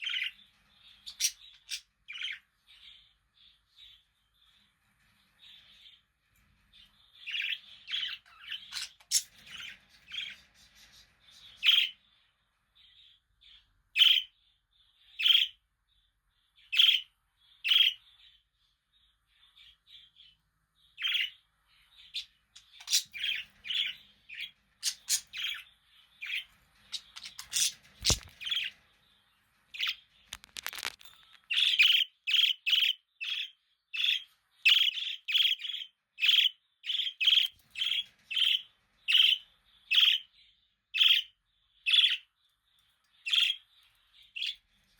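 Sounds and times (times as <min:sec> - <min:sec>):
budgies chirping and squawking: 0:00.0 - 0:03.2, 0:06.8 - 0:12.1, 0:14.0 - 0:14.3, 0:15.2 - 0:15.6, 0:16.7 - 0:18.3, 0:20.9 - 0:28.9, 0:29.5 - 0:40.3, 0:41.0 - 0:42.3, 0:43.2 - 0:44.9.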